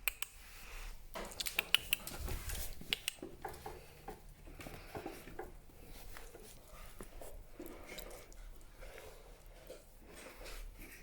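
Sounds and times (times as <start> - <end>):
sharp clicks: 1.3 - 2.2, 2.8 - 3.3
puppy scratchy patter: 1.3 - 11.0.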